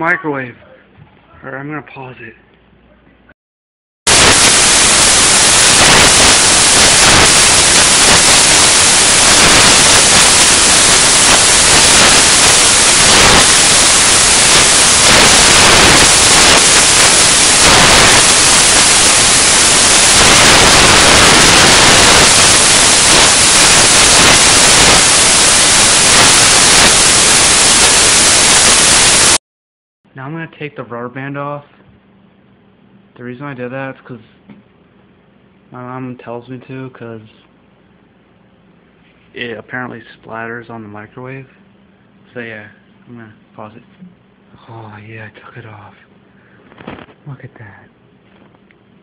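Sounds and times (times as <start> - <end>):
loud static hiss: 4.1 - 29.4, 45.2 - 49.0.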